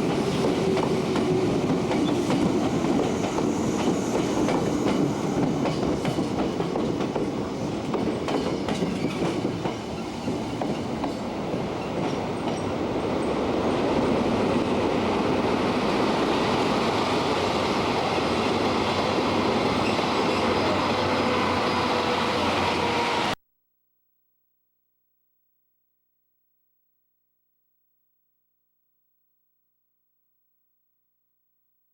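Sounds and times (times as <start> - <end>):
electric train running on rails: 0.0 - 23.4.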